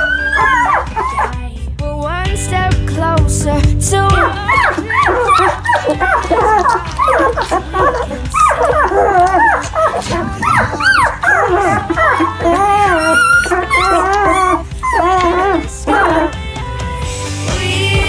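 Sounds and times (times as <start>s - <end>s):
puppies whining and yelping: 0.0s - 1.4s, 4.1s - 16.4s
background music: 0.0s - 18.0s.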